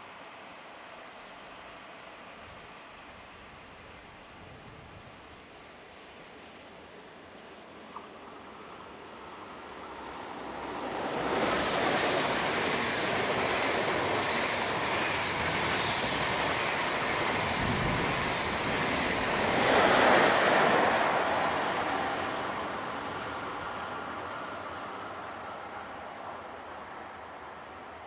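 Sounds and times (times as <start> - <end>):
train rushing past: 7.7 - 28.0.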